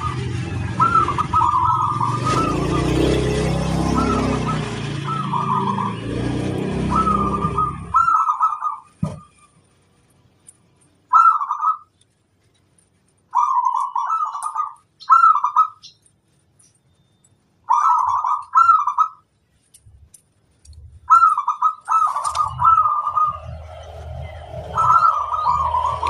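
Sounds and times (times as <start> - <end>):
dove cooing: 0.0 - 8.9, 11.1 - 11.9, 13.3 - 15.8, 17.7 - 19.2, 21.0 - 26.0
low rumble: 22.4 - 26.0.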